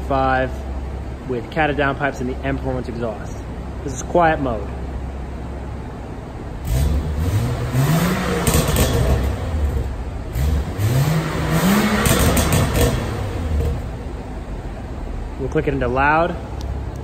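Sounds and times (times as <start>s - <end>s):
exhaust crackles: 0.0s - 17.0s
car engine revving: 6.6s - 15.2s.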